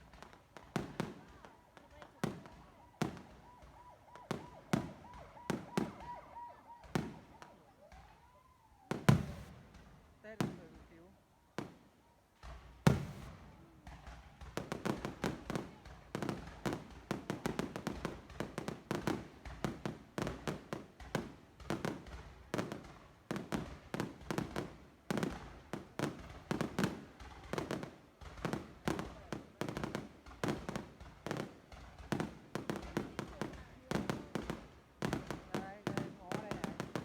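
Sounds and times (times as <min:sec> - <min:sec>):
fireworks bangs: 0:00.0 - 0:37.0.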